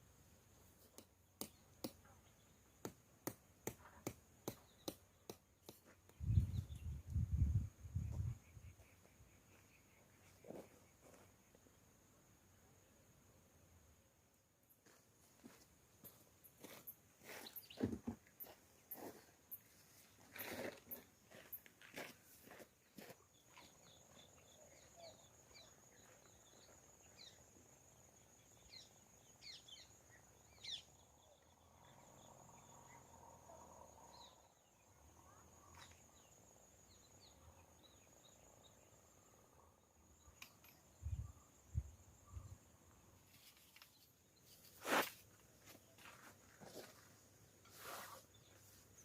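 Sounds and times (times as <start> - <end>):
bird chirps: 28.4 - 33.1.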